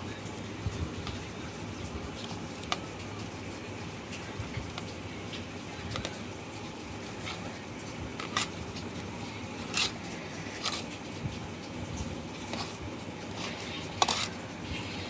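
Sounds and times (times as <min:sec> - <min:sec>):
utensils and dish clicking: 0:08.2 - 0:08.9, 0:09.6 - 0:11.0, 0:12.4 - 0:14.4.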